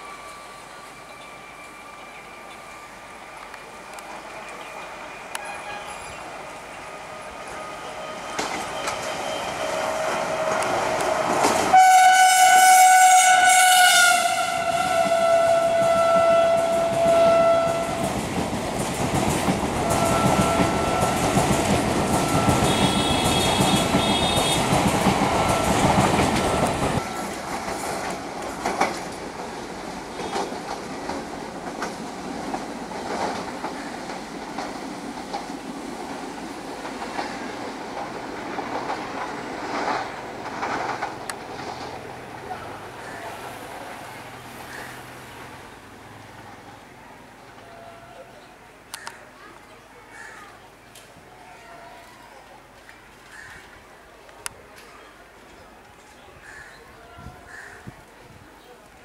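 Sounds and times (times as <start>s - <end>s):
distant train noise with clicks: 0.0s - 59.0s
train running rumble: 2.3s - 46.7s
train horn blast: 5.3s - 6.2s, 7.1s - 18.2s, 19.8s - 27.4s, 47.6s - 48.4s.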